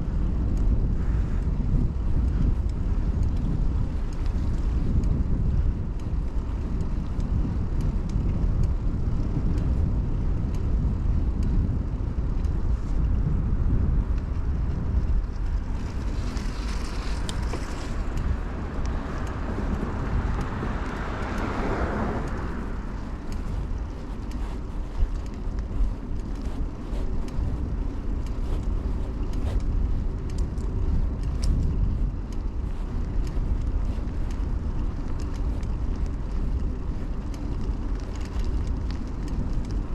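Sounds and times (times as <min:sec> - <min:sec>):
bicycle tyre noise: 0:00.0 - 0:39.9
wind rumble on camera: 0:00.0 - 0:39.9
motor vehicle passing: 0:15.5 - 0:30.2.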